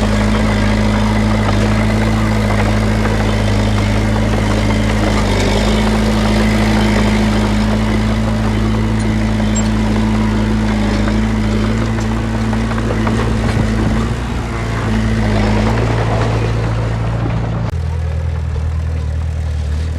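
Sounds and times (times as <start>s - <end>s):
diesel engine droning: 0.0s - 19.9s.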